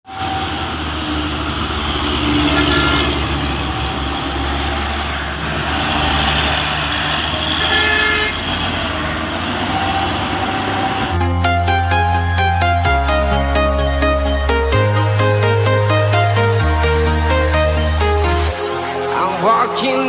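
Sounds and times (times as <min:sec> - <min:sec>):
heavy engine droning: 0:00.0 - 0:19.6
road noise: 0:00.0 - 0:20.0
vehicle horns tooting: 0:00.1 - 0:11.2.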